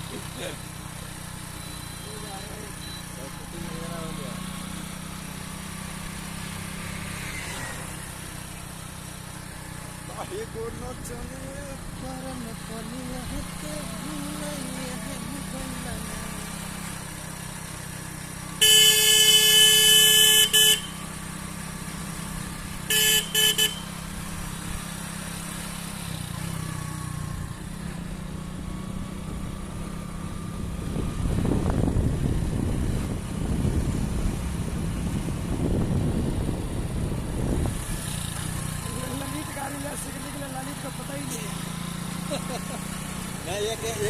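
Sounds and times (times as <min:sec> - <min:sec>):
motorcycle engine running: 0:00.0 - 0:44.0
motorcycle horn: 0:18.6 - 0:21.2, 0:22.8 - 0:24.3.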